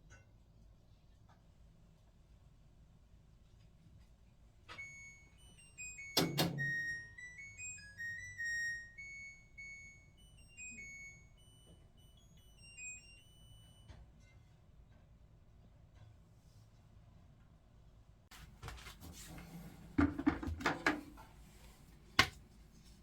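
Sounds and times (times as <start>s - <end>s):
washing machine beep tune: 4.7s - 14.2s.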